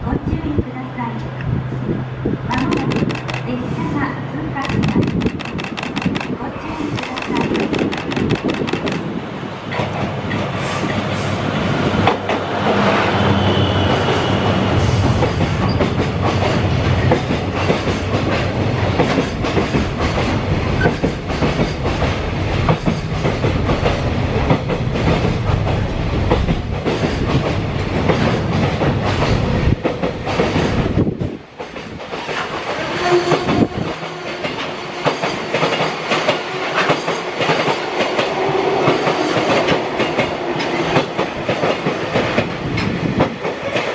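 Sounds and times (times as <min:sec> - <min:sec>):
train wheels clattering over rails: 0:04.6 - 0:09.1, 0:15.0 - 0:32.8.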